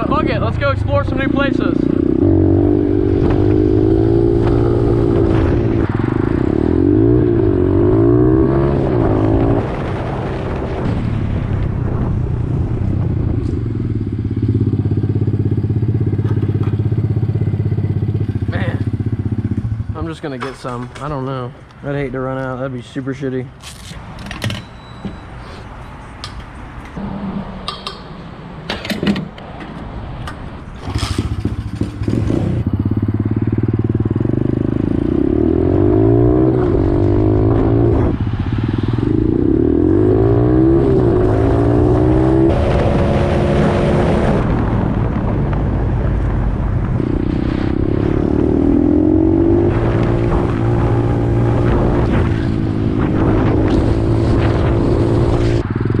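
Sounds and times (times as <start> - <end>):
pit bike engine accelerating: 0.0 - 10.9, 12.8 - 20.3, 30.8 - 46.0, 46.8 - 56.0.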